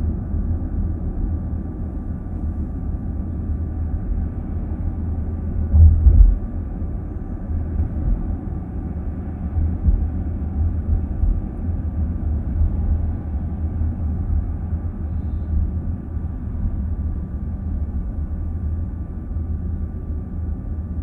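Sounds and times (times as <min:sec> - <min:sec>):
road and tyre noise in car: 0:00.0 - 0:21.0
low thump: 0:05.7 - 0:06.4.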